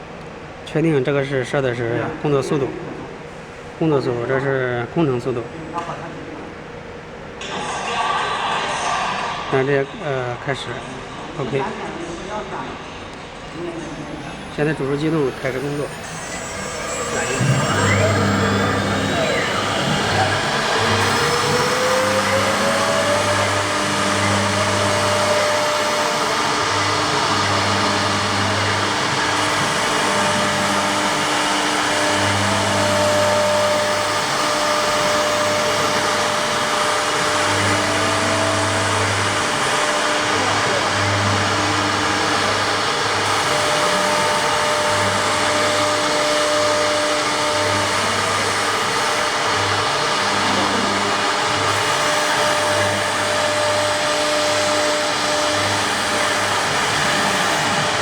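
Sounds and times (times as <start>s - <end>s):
wood router spindle whining: 13.2s - 58.0s
low hum: 13.3s - 39.1s.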